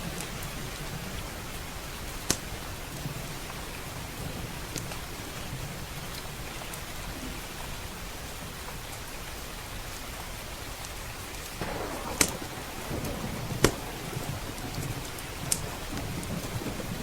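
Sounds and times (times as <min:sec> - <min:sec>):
steady rain: 0:00.0 - 0:17.0
wood fire crackles: 0:10.8 - 0:17.0.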